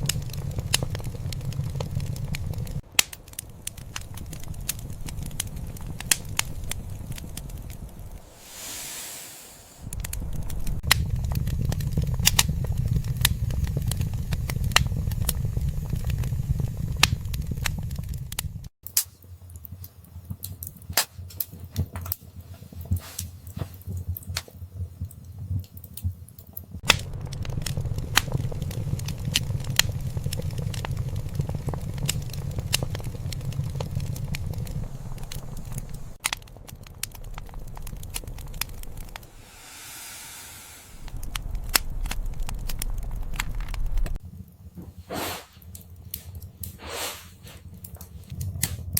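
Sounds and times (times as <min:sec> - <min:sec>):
low rumble: 0:00.0 - 0:18.7, 0:26.8 - 0:44.7
fire popping: 0:00.0 - 0:48.9
wood fire crackling: 0:00.0 - 0:48.9.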